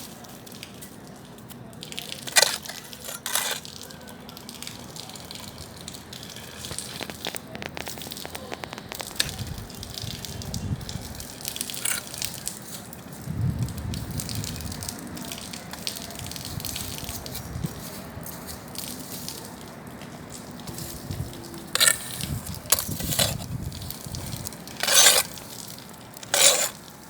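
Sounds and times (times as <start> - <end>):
bonfire crackling and popping: 0.0 - 27.0.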